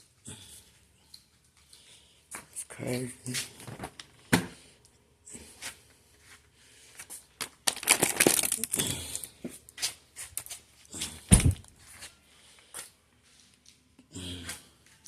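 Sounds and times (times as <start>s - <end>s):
rustling and crinkling: 5.6s - 13.9s
heavy thump: 11.3s - 11.6s.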